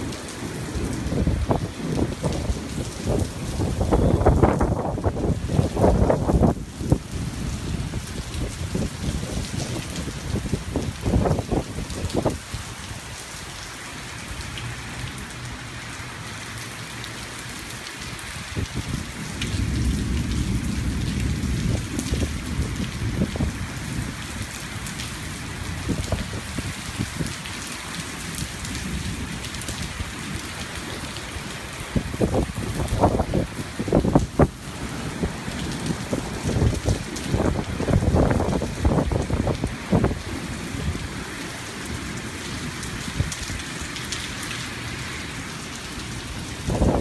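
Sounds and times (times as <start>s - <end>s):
thunder rumbling: 0.0s - 12.4s, 18.4s - 27.3s, 31.9s - 41.1s
steady rain falling: 0.0s - 47.0s.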